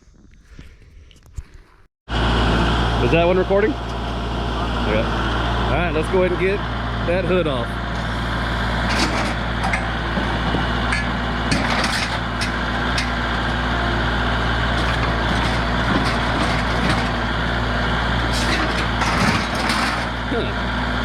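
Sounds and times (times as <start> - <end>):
engine idling: 2.1 - 21.0
metallic clanks and knocks: 8.8 - 13.5, 14.8 - 17.2, 18.3 - 20.2.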